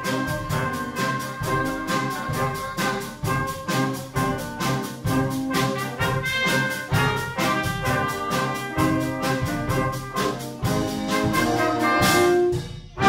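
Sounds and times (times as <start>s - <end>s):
brass band playing: 0.0s - 13.0s.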